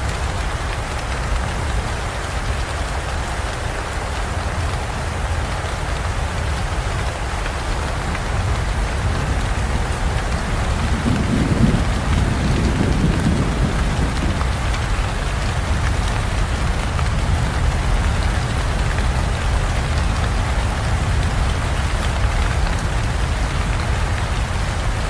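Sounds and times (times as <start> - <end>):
heavy rain pouring: 0.0 - 25.0
thunder rolling: 8.0 - 20.0.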